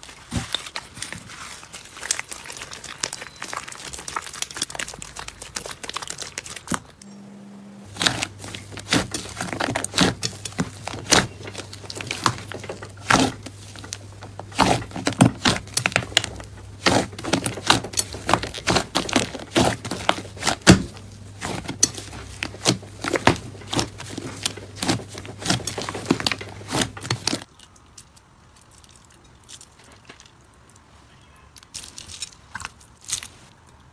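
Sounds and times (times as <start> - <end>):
slime crackling and popping: 0.3 - 7.0, 7.9 - 27.5
faint steady low hum: 7.0 - 27.4.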